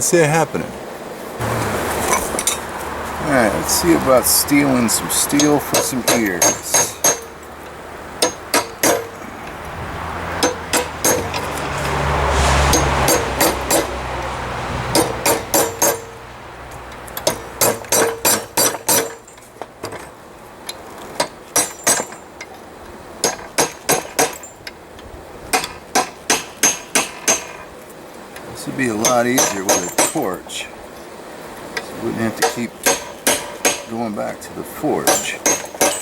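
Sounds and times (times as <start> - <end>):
rushing noise with low hum: 0.0 - 17.9
hammer striking metal on anvil: 4.5 - 7.4, 8.2 - 9.2, 10.4 - 11.6, 12.7 - 14.0, 14.9 - 16.2, 17.2 - 19.4, 21.6 - 22.2, 23.2 - 24.5, 25.5 - 27.6, 29.0 - 30.4, 32.4 - 34.0, 35.0 - 36.0.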